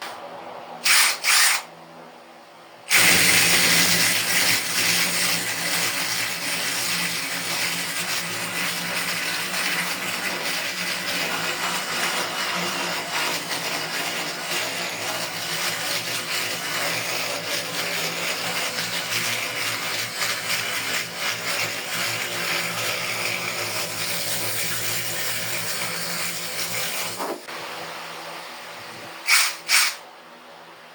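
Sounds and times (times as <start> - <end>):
chainsaw attachment cutting wood: 0.8 - 1.7, 2.9 - 27.3
loud bursts: 0.8 - 1.7, 2.9 - 7.0, 29.2 - 30.0.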